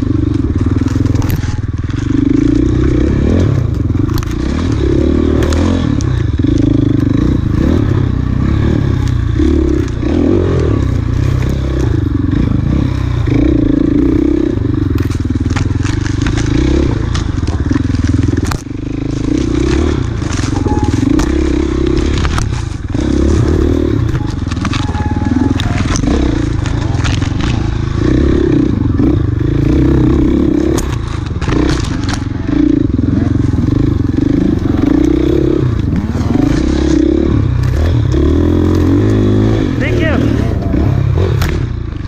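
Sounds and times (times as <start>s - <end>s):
bike knocking and clattering: 0.0s - 12.4s, 13.2s - 42.0s
dirt bike engine revving: 0.0s - 42.0s.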